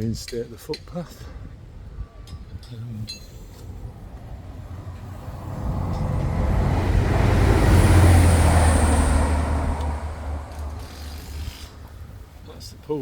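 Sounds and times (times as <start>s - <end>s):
train passing: 3.1s - 12.5s.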